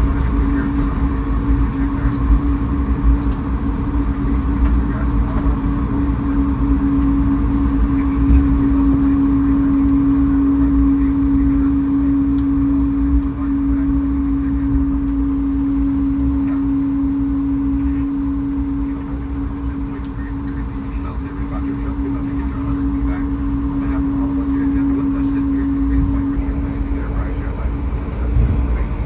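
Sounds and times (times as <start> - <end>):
aircraft cabin engine hum: 0.0 - 29.0.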